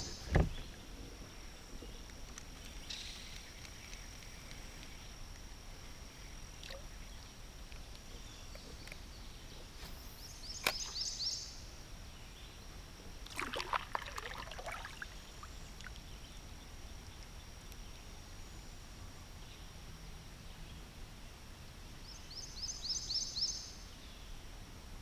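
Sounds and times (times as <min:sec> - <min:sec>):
steady high-pitched whine: 0:00.0 - 0:25.0
water splashing and sloshing: 0:13.2 - 0:16.1.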